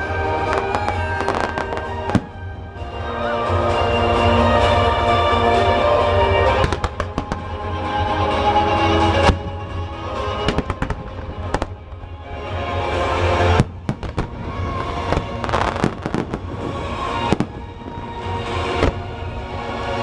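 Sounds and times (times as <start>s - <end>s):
fireworks bursting: 0.0s - 3.0s, 6.3s - 12.1s, 13.4s - 19.4s
music playing: 0.0s - 20.0s.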